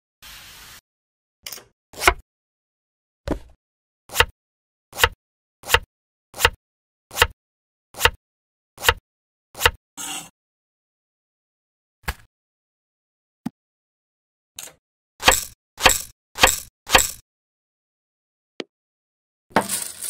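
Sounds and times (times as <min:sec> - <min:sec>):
knife chopping on wooden board: 0:03.3 - 0:04.3, 0:05.0 - 0:07.4, 0:08.0 - 0:08.2, 0:08.8 - 0:09.0, 0:09.6 - 0:09.8, 0:15.2 - 0:17.2.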